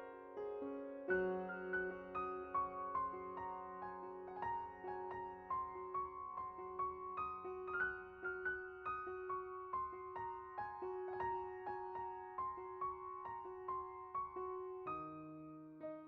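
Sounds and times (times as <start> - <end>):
soft piano music: 0.0 - 16.0.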